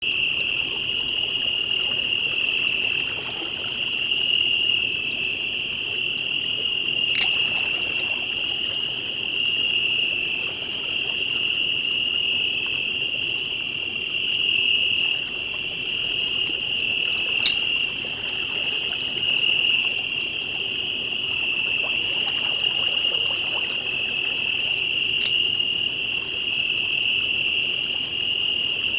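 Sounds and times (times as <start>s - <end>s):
crickets trilling: 0.0s - 28.9s
campfire pops: 7.1s - 7.9s.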